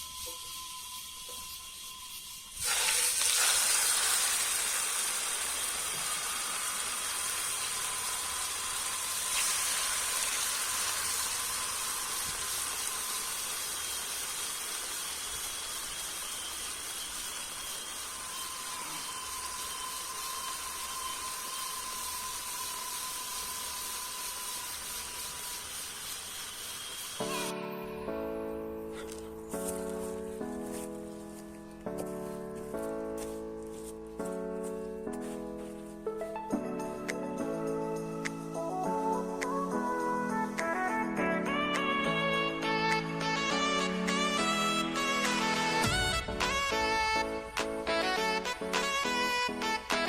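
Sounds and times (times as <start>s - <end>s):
steak sizzling in a hot pan: 0.0s - 27.6s.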